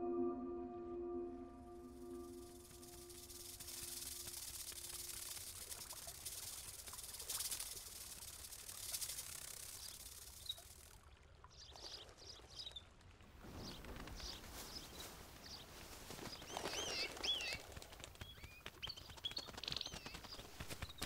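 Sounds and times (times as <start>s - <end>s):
fine ticks: 2.2s - 11.0s
small birds chirping: 2.4s - 10.9s, 13.6s - 21.0s.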